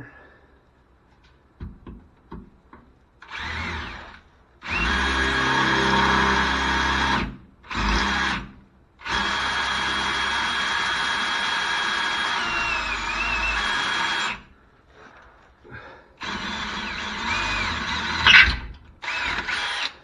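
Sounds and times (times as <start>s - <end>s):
electric drill motor running: 3.2s - 14.5s, 16.2s - 20.0s.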